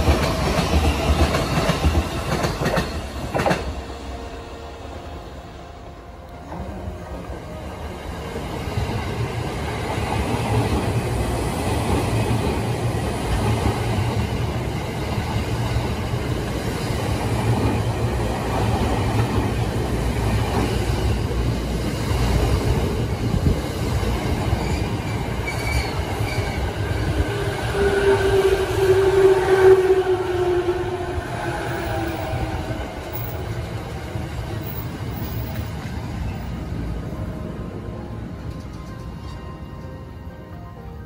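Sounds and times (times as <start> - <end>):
train wheels rumbling on rail: 0.0 - 40.1
train brake squeal: 24.5 - 26.7.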